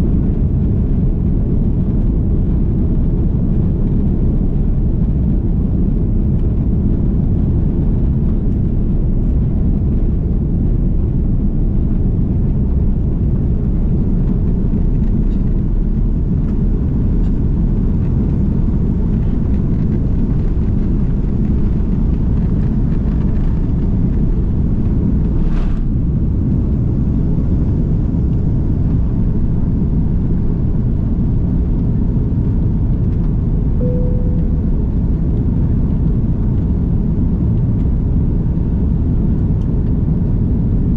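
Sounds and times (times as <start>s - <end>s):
jet engine cabin rumble: 0.0s - 40.9s
brief click: 33.8s - 34.6s
short tone: 33.8s - 35.4s.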